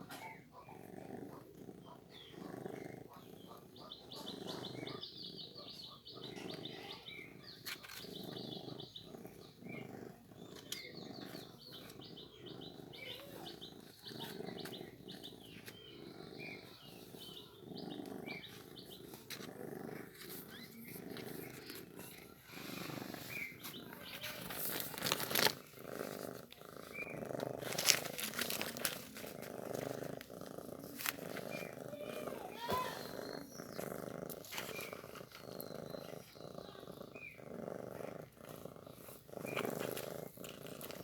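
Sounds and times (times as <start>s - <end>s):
cat purring: 0.0s - 41.0s
scuffling noises: 18.7s - 35.8s
kittens squeaking: 30.8s - 37.4s.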